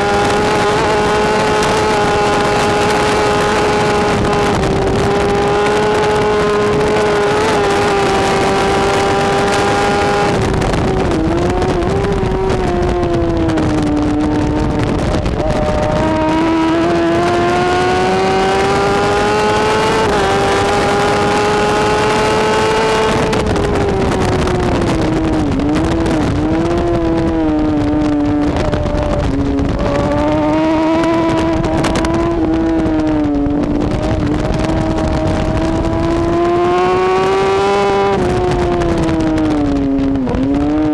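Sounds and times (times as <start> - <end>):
motorcycle engine revving: 0.0 - 40.9
wind and road noise: 0.0 - 40.9.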